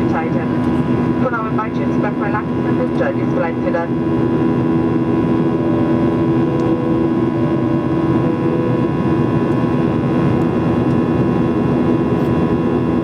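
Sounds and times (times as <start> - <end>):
constant hums: 0.0 - 13.0
jet engine drone: 0.0 - 13.0.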